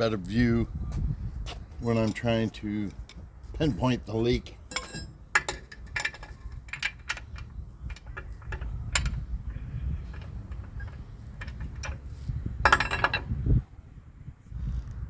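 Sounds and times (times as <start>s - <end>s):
metallic clatter: 4.6s - 13.4s
metal hand tools clinking: 4.7s - 9.2s.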